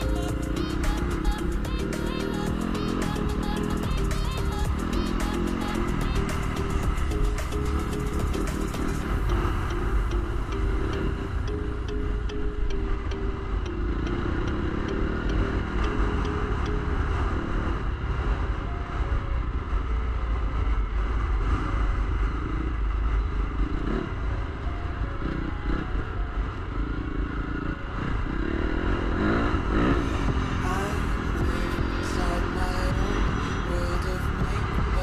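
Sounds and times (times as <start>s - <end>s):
dirt bike engine revving: 0.0s - 11.6s, 12.8s - 18.2s, 26.7s - 35.0s
wind rumble on microphone: 17.1s - 25.8s.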